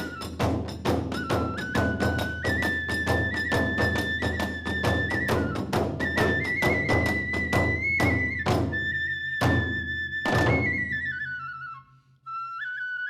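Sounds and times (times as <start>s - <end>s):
hand cymbals: 0.0s - 7.8s
drum strokes: 0.0s - 8.8s
bamboo flute melody: 0.0s - 13.0s.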